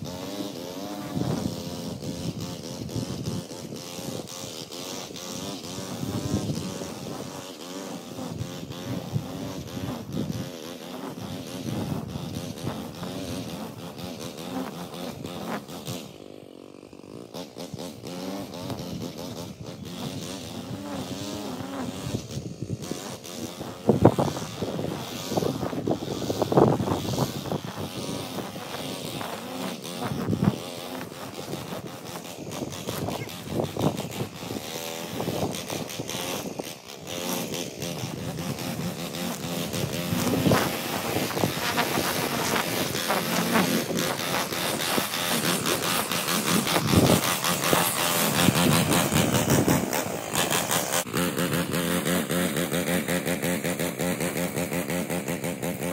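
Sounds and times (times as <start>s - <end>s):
lawn mower engine running: 0.0s - 55.9s
wind buffeting microphone: 1.0s - 4.3s, 5.6s - 7.4s, 11.2s - 14.1s, 18.7s - 50.8s.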